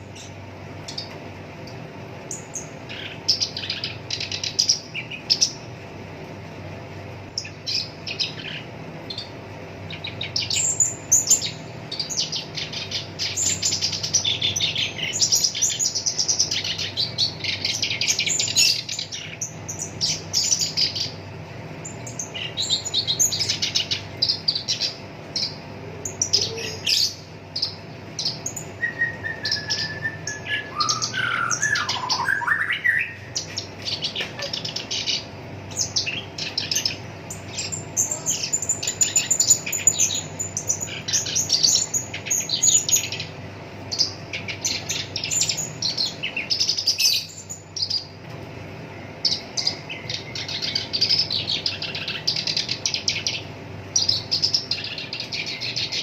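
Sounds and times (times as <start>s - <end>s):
warbler chattering song: 0.0s - 56.0s
sliding whistled bird phrase: 28.8s - 33.3s.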